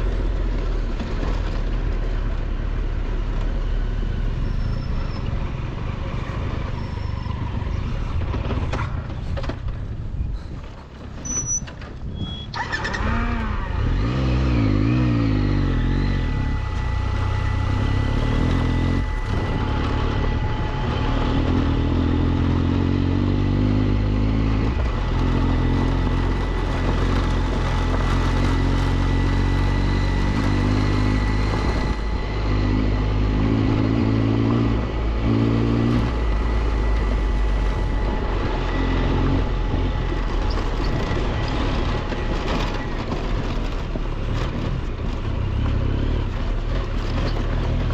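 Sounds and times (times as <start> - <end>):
motorcycle engine accelerating: 12.5 - 47.9.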